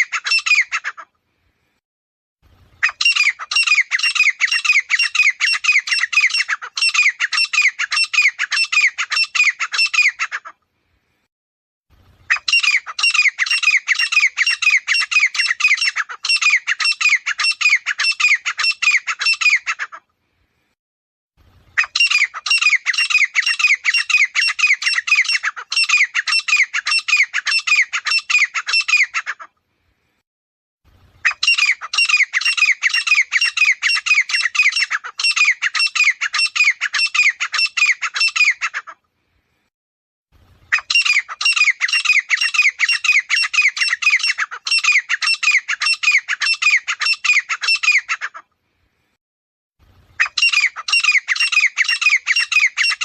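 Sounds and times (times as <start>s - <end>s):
bird calling with harsh notes: 0.0s - 1.1s, 2.7s - 10.6s, 12.1s - 20.1s, 21.7s - 29.6s, 31.2s - 39.0s, 40.6s - 48.5s, 50.1s - 53.0s.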